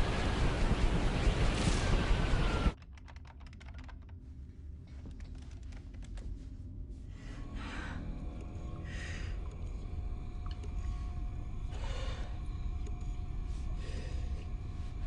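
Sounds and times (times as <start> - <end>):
low machinery hum: 0.0 - 2.8, 6.2 - 15.0
console keys clicking: 2.8 - 4.2.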